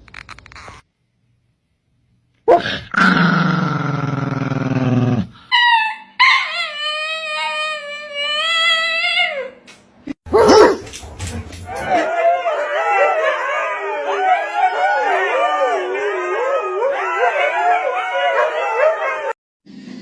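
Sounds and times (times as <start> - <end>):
dog howling: 4.7 - 9.6, 10.3 - 19.4.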